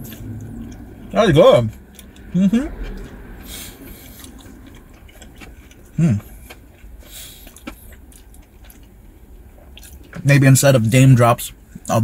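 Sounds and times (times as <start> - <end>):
man chewing food: 0.0 - 1.1, 1.7 - 10.2
man humming mm: 6.0 - 6.3.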